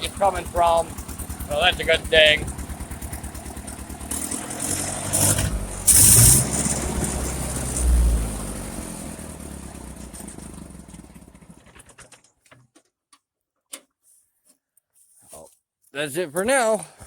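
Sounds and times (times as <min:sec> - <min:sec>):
tractor engine running: 0:00.0 - 0:12.2.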